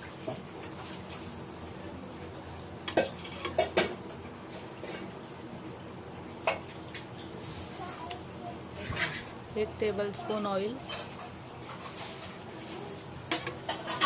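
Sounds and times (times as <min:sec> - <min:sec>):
utensils and dishes clinking: 0:02.8 - 0:05.1, 0:08.8 - 0:14.0.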